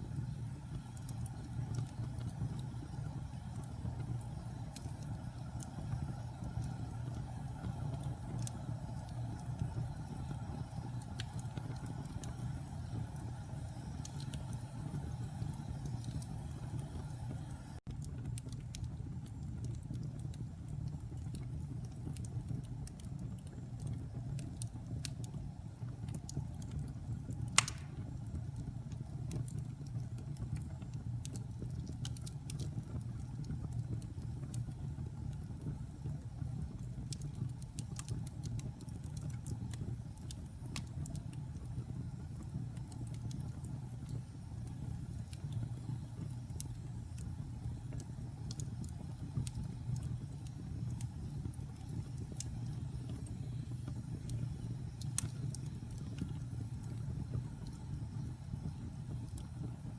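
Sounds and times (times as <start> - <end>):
fire rumbling and crackling: 0.0 - 59.9
loud pop of fire: 27.5 - 28.2.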